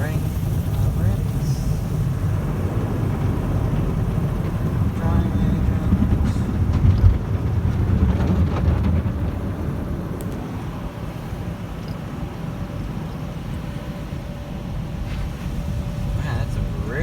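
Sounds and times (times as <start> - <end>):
faint steady hum: 0.0 - 7.2
car wash brushes and water: 0.0 - 17.0.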